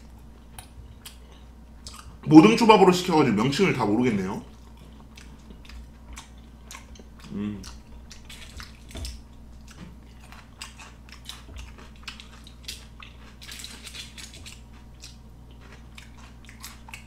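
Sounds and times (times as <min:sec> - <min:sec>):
faint low hum: 0:00.0 - 0:17.0
wet mouth chewing clicks: 0:01.8 - 0:02.2, 0:04.7 - 0:17.0.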